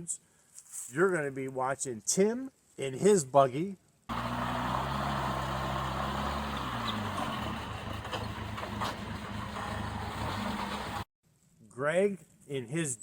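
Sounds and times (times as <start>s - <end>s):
buggy engine running at low revs: 4.1s - 11.0s.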